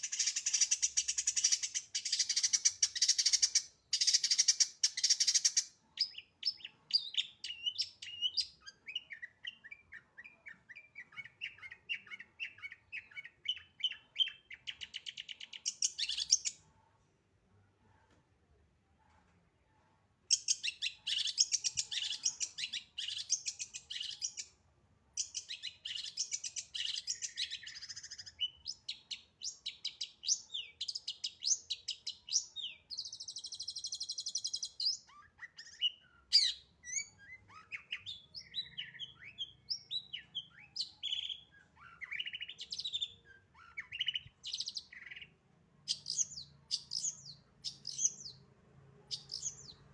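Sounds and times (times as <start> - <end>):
bird singing varied song: 0.0 - 16.7, 20.3 - 24.6, 25.2 - 49.9.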